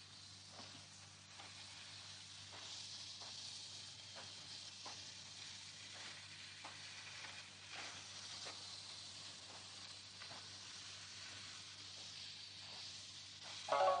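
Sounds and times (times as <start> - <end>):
faint steady hiss: 0.0 - 14.0
soft irregular ticks: 0.0 - 14.0.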